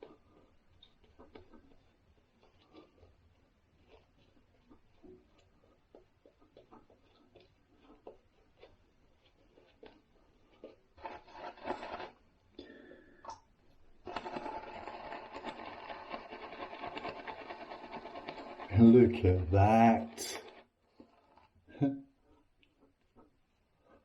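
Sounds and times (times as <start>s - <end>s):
razor scraping stubble: 3.8s - 12.2s, 14.0s - 21.6s.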